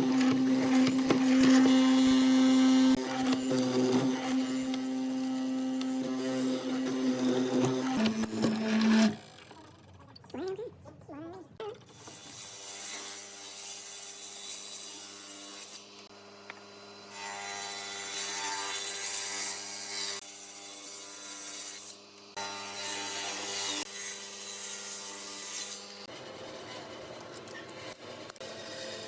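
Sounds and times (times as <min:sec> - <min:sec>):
rough sanding or cutting wood: 0:00.0 - 0:09.4
power tool motor humming: 0:00.0 - 0:09.8.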